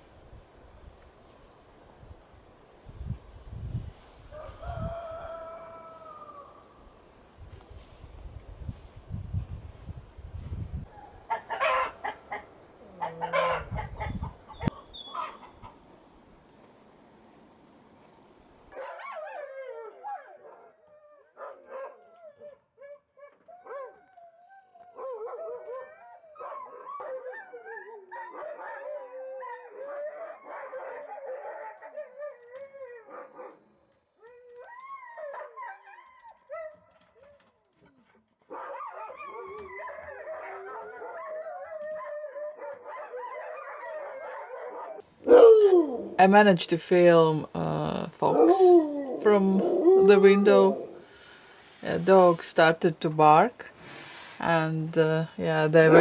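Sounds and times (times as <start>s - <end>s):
wind: 0.0s - 56.0s
dogs howling together: 18.8s - 37.4s, 38.5s - 46.2s, 48.2s - 51.0s.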